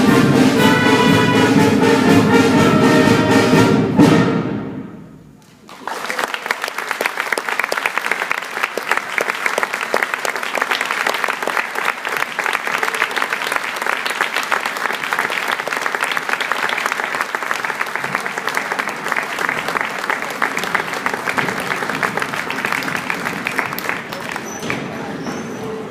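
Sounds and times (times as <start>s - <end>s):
audience applauding: 5.4s - 25.4s.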